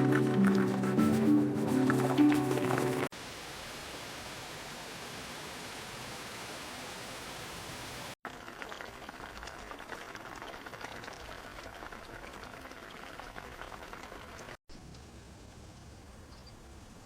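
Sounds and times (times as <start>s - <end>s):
pot of liquid boiling: 8.2s - 14.6s.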